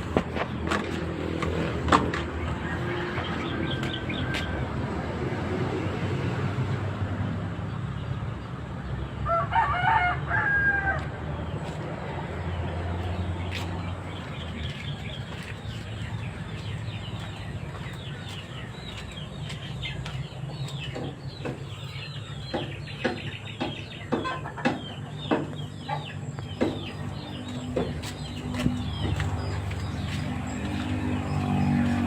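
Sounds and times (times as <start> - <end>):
chickens clucking: 13.1 - 32.0.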